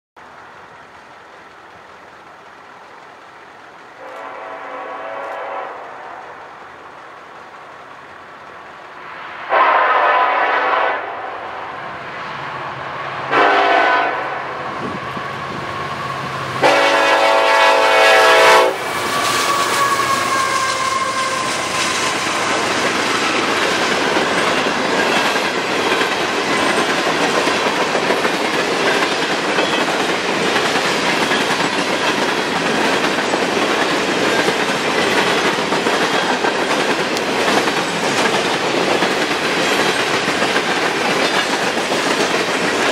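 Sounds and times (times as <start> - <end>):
steel wheels rumbling on rails: 0.2 - 42.9
locomotive air horn blasts: 4.0 - 6.4, 9.5 - 11.5, 13.3 - 14.5, 16.2 - 22.2.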